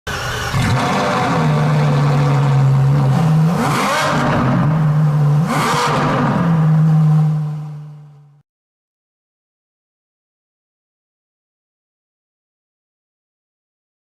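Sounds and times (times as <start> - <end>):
motorcycle engine idling and revving: 0.1 - 8.4.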